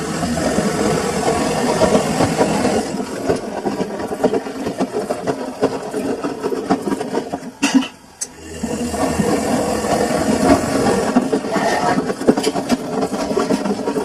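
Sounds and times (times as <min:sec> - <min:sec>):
washing machine motor hum: 0:00.0 - 0:14.0
drum clunking and rattling: 0:00.2 - 0:08.0.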